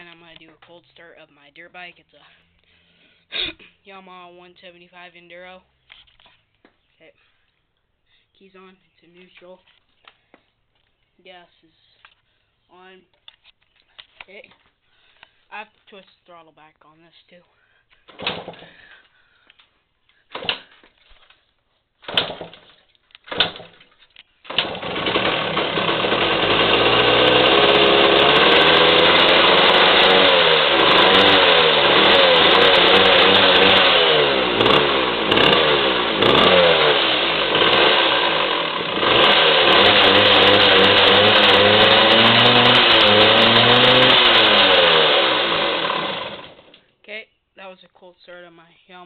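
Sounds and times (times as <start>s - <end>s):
two-stroke engine starting and revving: 18.1s - 18.9s, 22.1s - 23.8s, 24.4s - 46.8s.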